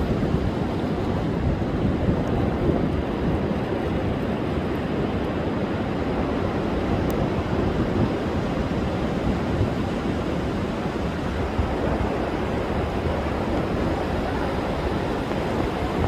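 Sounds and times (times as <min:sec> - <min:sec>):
wind: 0:00.0 - 0:16.0
sea surf breaking on beach: 0:05.5 - 0:16.0.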